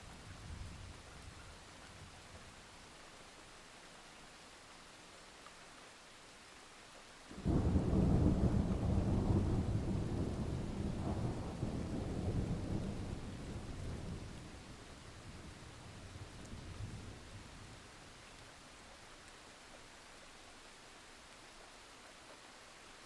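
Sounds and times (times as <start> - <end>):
steady rain falling: 0.0 - 23.0
thunderclap rumbling: 7.4 - 15.6.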